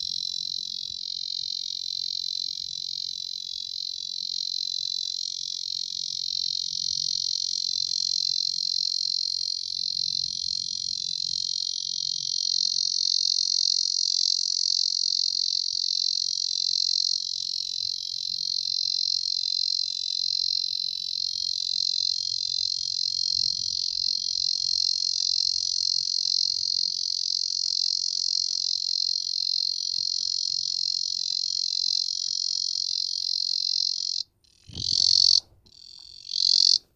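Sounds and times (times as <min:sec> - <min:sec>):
cicadas buzzing: 0:12.6 - 0:36.8.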